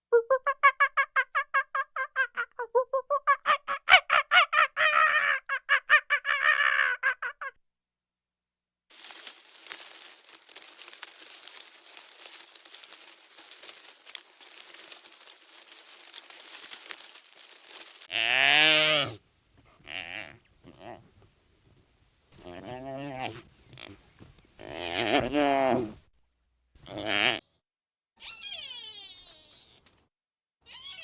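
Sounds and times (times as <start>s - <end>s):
steady hiss with crackles: 8.9s - 18.1s
poultry calling: 9.0s - 19.2s.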